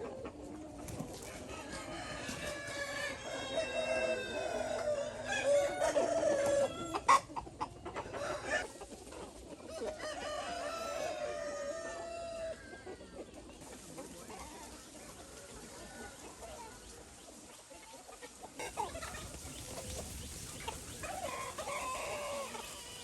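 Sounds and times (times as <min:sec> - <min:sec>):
hens clucking: 0:00.0 - 0:23.0
rooster crowing: 0:01.5 - 0:07.0, 0:09.7 - 0:12.8, 0:21.2 - 0:23.0.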